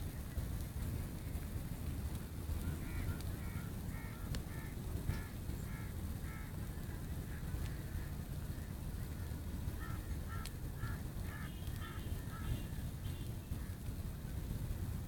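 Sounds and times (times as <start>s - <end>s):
steady low rumble: 0.0s - 15.0s
short bird calls: 2.6s - 6.6s, 9.8s - 13.8s.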